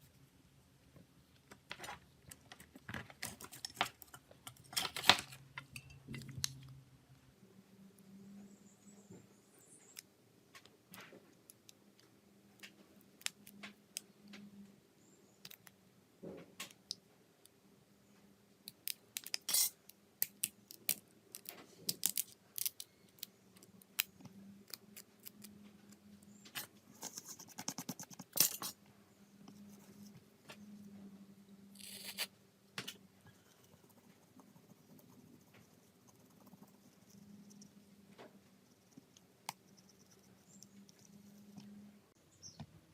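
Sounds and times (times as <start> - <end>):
faint low hum: 0.0 - 42.9
small tools clicking and scraping: 1.7 - 6.6, 19.2 - 27.2, 28.1 - 28.8.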